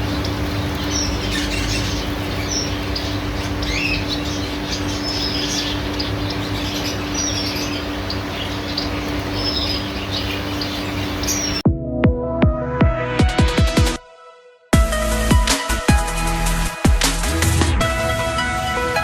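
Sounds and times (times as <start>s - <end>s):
small birds chirping and whistling: 0.0s - 11.6s
steady low hum: 0.0s - 11.6s.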